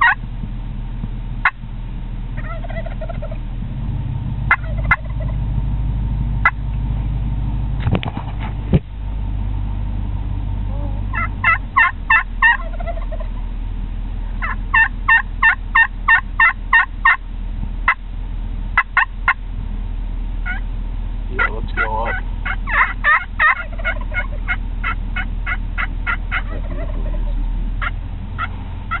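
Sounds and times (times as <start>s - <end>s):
turkeys gobbling: 0.0s - 0.2s, 1.4s - 1.7s, 2.3s - 3.4s, 4.4s - 5.5s, 6.4s - 6.8s, 10.7s - 13.6s, 14.3s - 18.0s, 18.7s - 19.4s, 20.4s - 29.0s
low steady hum: 0.0s - 29.0s
turkey call yelps: 2.4s - 3.4s, 4.5s - 5.4s, 10.7s - 13.4s, 14.4s - 17.2s, 18.8s - 19.4s, 20.4s - 20.6s, 21.4s - 29.0s.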